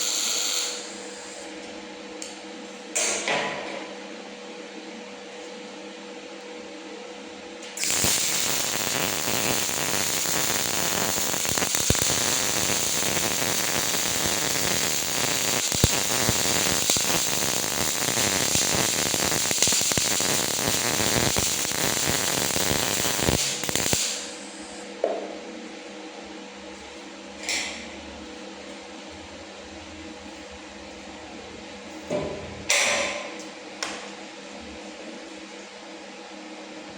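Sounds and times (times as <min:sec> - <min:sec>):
welding arc crackling: 0:00.0 - 0:01.0, 0:07.8 - 0:24.5.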